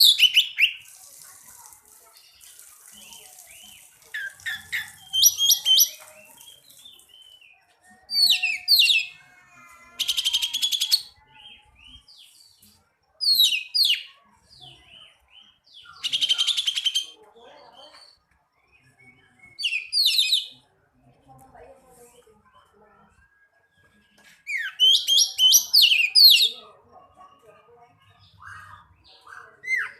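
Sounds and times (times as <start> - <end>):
songbird whistling and trilling: 3.7 - 7.5, 8.1 - 9.2, 19.2 - 20.6, 24.5 - 26.5.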